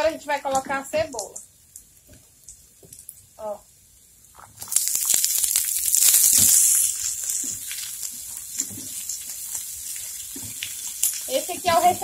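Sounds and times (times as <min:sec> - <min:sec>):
onion sizzling in frying pan: 0:00.0 - 0:12.0
spatula stirring and scraping pan: 0:07.0 - 0:12.0.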